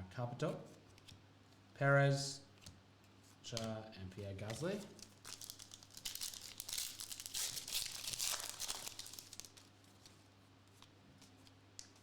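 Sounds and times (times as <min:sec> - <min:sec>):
foil wrapper tearing and crinkling: 0:04.8 - 0:10.2.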